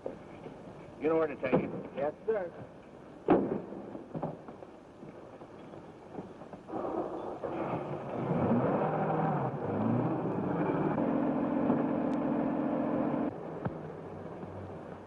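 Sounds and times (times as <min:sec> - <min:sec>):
car engine revving and running: 0:07.6 - 0:13.4.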